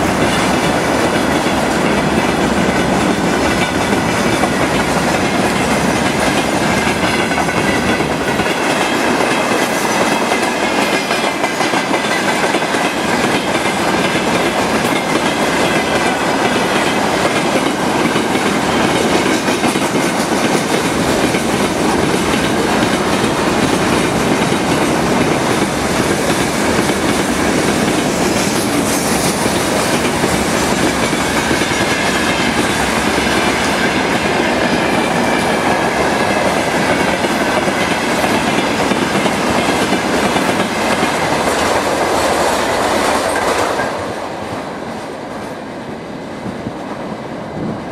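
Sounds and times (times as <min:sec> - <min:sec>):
freight train wheels clattering: 0:00.0 - 0:47.9.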